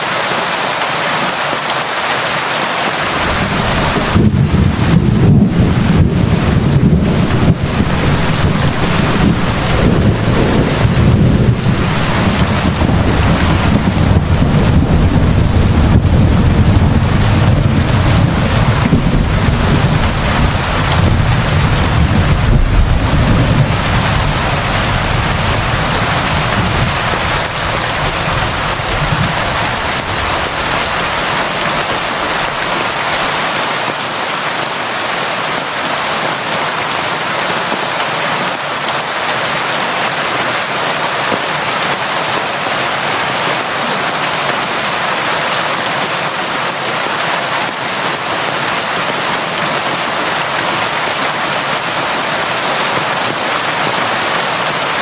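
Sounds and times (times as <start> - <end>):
rain falling: 0.0 - 55.0
low rumble of thunder: 3.1 - 33.2.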